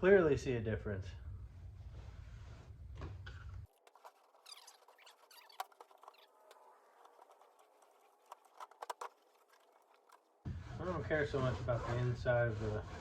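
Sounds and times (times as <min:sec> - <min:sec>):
short squeaky glides: 0:04.2 - 0:08.2.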